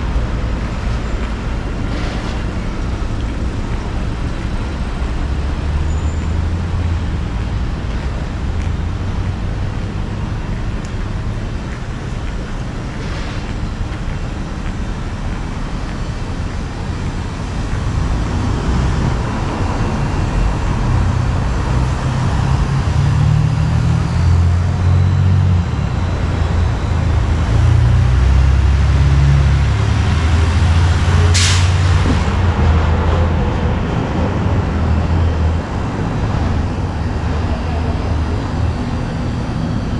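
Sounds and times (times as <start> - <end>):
traffic rumble: 0.0 - 39.9
sharp hiss of air: 31.3 - 31.9.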